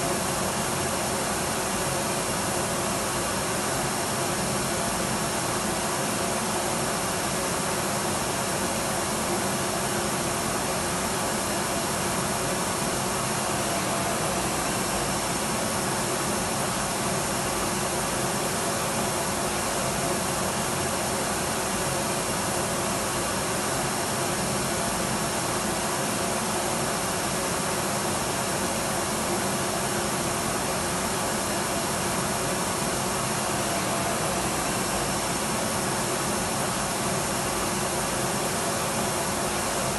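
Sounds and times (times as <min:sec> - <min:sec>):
faint high steady tone: 0:13.6 - 0:15.1, 0:33.4 - 0:35.4.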